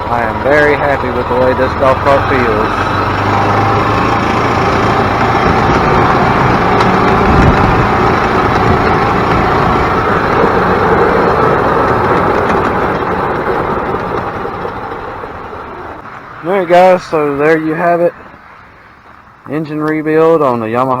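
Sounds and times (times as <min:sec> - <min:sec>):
golf cart engine running: 0:00.0 - 0:21.0.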